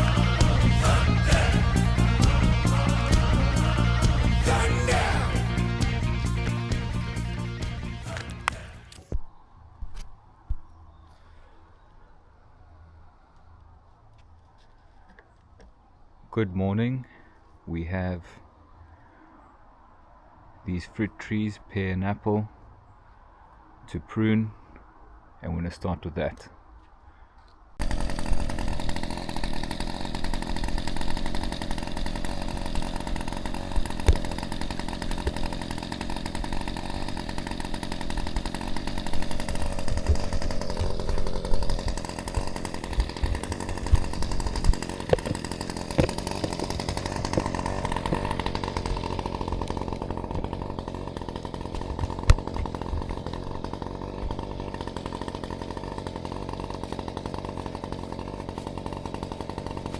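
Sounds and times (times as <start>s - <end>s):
motorised cutting tool running: 0.0s - 9.1s, 27.8s - 59.9s.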